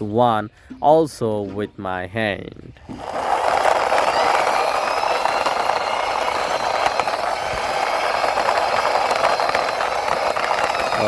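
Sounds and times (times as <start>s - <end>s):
toy truck wheels rolling: 2.7s - 11.0s.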